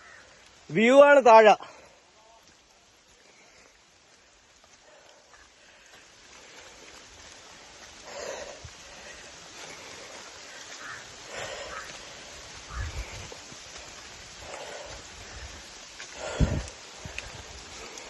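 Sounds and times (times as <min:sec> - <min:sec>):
steady hiss: 0:00.0 - 0:18.0
person breathing hard: 0:04.7 - 0:18.0.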